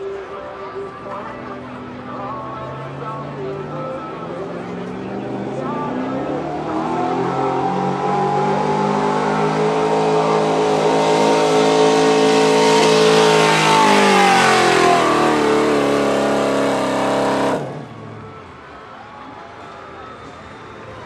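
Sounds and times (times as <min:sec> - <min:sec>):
pickup truck engine revving hard: 0:04.6 - 0:18.3.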